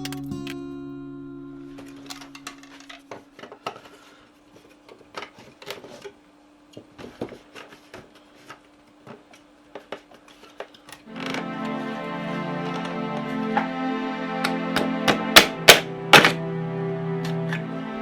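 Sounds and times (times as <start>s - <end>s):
faint music note: 0.0s - 3.6s, 11.1s - 18.0s.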